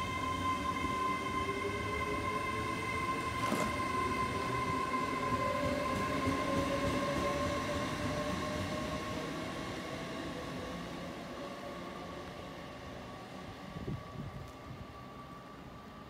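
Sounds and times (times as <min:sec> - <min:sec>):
train electric whine: 0:00.0 - 0:09.4.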